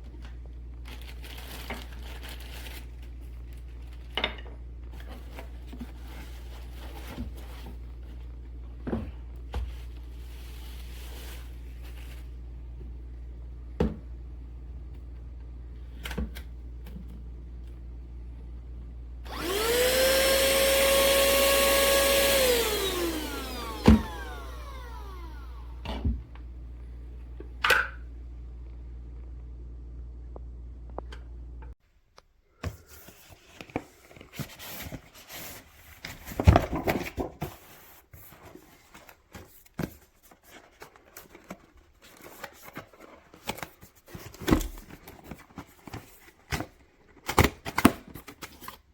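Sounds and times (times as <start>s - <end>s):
handheld vacuum motor whine: 19.2s - 26.1s.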